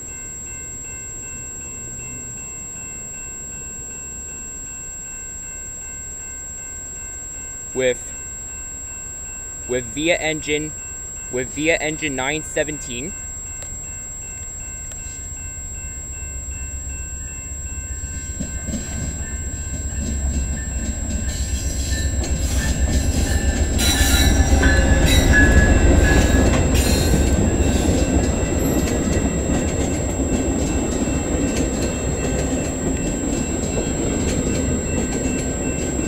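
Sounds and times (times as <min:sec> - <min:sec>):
train rumbling into station: 0:06.9 - 0:36.0
high-pitched wheel squeal: 0:21.3 - 0:28.0.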